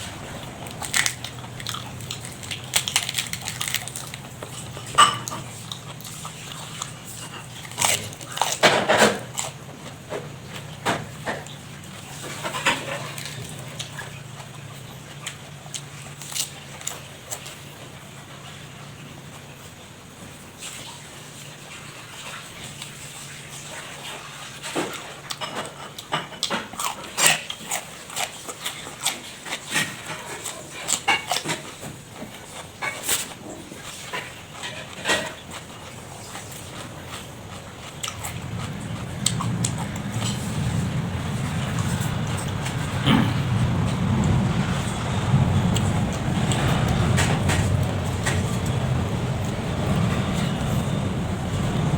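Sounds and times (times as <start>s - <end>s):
low rumble: 0.0s - 6.5s, 36.5s - 51.9s
steady low hum: 0.0s - 8.6s, 35.3s - 51.9s
chewing with crunches: 0.0s - 51.9s.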